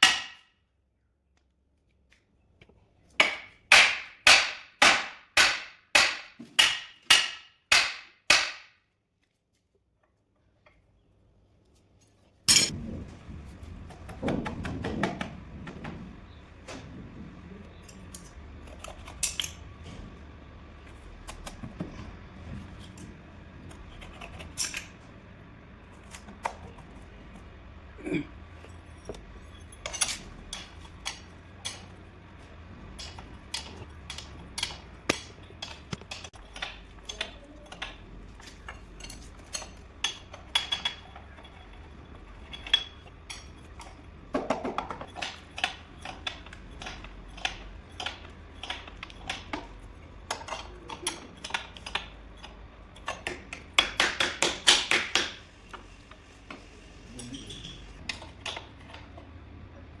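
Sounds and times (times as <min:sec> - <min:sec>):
metal tools clinking on metal: 0:12.0 - 0:12.8, 0:17.7 - 0:19.7, 0:28.5 - 0:32.1, 0:32.9 - 0:53.3, 0:57.1 - 0:59.1.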